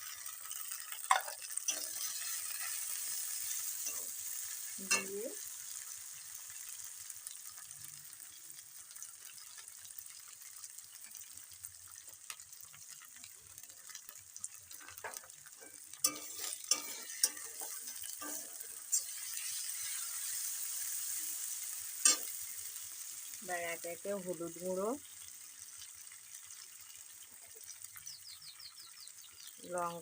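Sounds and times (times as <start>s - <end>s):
paste frying in oil: 0.0s - 30.0s
metal spatula scraping pan: 15.6s - 20.6s.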